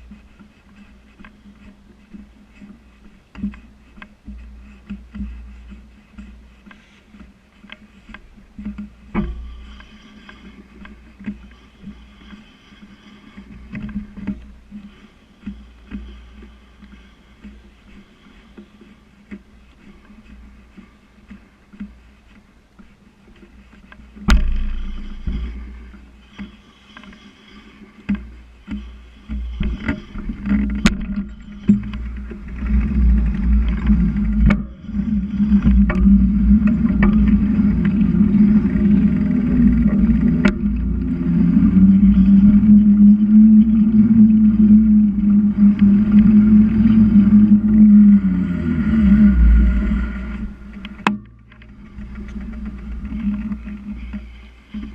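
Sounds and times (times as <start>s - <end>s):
wind rumble on microphone: 0.0s - 54.9s
bicycle knocks and rattles: 8.0s - 11.8s, 23.9s - 27.1s.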